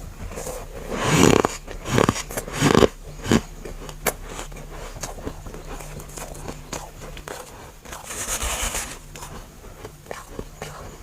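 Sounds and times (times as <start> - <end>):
frost being chewed: 0.3 - 8.2.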